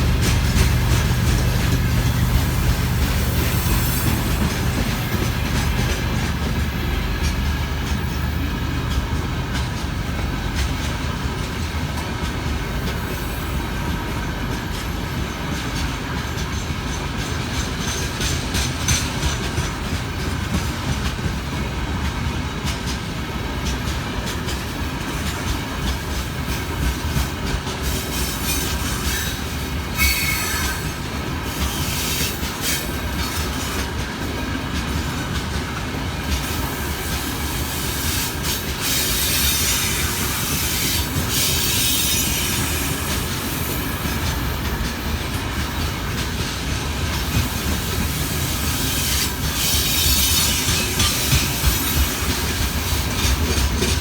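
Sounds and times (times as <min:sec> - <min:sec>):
freight train rumbling past: 0:00.0 - 0:54.0
high-pitched wheel squeal: 0:30.0 - 0:30.8.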